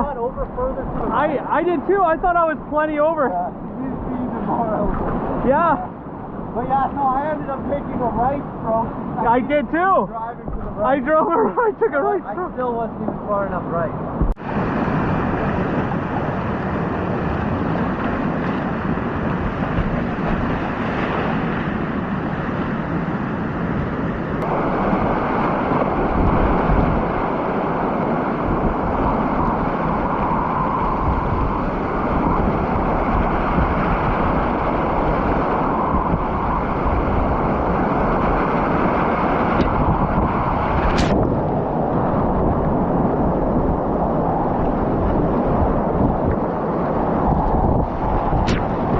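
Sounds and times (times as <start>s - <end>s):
rapids rushing: 0.0s - 48.9s
wind on microphone: 0.0s - 48.9s.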